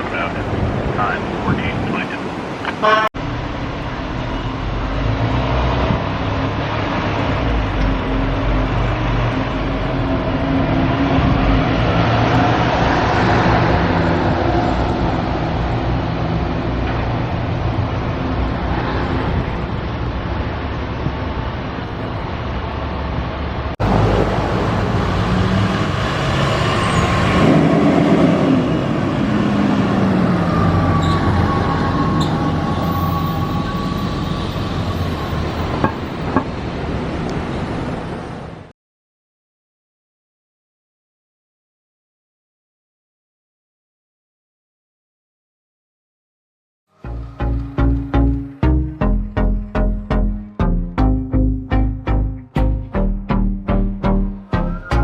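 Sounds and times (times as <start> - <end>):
heavy engine running: 3.2 - 38.6, 46.9 - 55.0
siren rising and falling: 23.8 - 36.0, 47.1 - 55.0.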